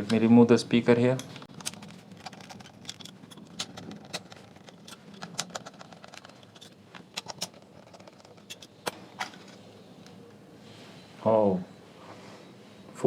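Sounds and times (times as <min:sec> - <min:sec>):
hand tools clicking and tapping: 0:01.2 - 0:10.2.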